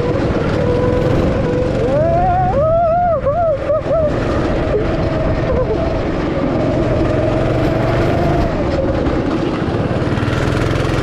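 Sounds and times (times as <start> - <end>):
go-kart engine buzzing: 0.0 - 11.0.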